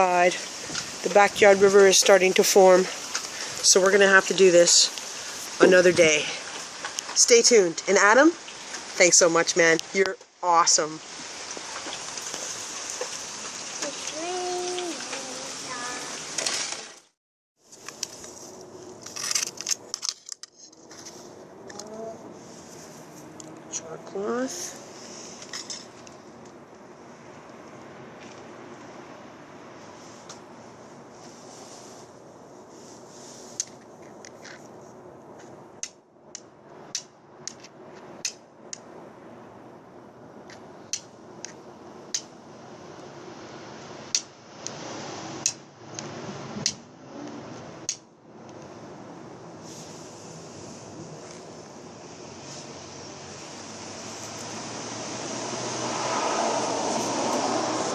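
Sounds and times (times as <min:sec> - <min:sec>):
background hiss: 0:00.0 - 0:16.8, 0:20.9 - 0:36.1, 0:48.6 - 0:57.9
steady rain: 0:00.0 - 0:19.1, 0:40.5 - 0:57.9.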